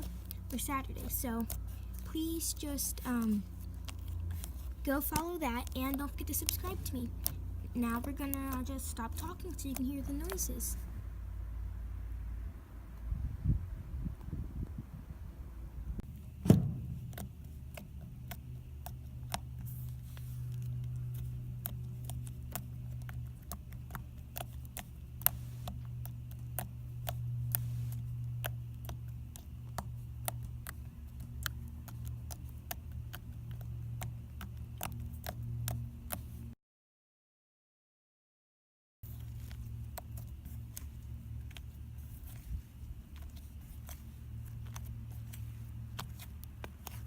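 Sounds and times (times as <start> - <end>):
steady low hum: 0.0 - 36.6, 39.0 - 47.0
thump: 16.4 - 17.4.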